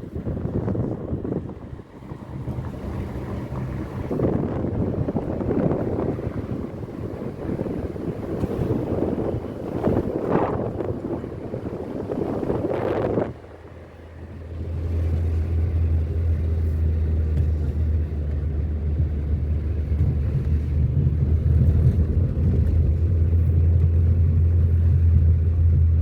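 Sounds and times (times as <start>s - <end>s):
wind noise rushing: 0.0s - 13.6s
car engine and road noise: 0.0s - 26.0s.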